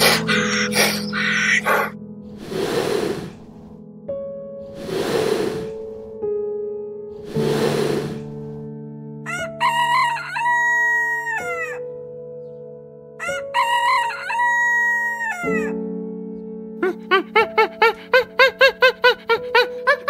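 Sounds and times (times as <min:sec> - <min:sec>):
soft piano music: 0:00.0 - 0:20.0
rooster crowing: 0:09.3 - 0:11.8, 0:13.2 - 0:15.7.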